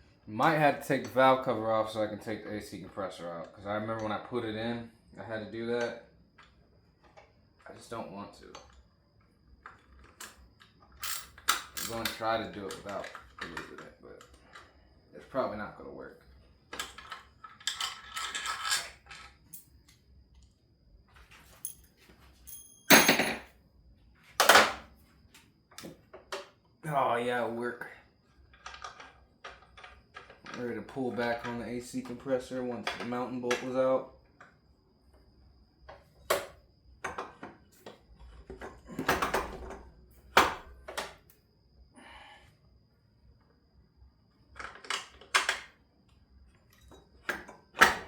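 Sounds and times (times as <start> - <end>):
metal parts clanking: 16.8 - 19.4, 22.5 - 23.5
tools scraping rattle: 16.8 - 19.5
metallic ring: 22.5 - 23.5.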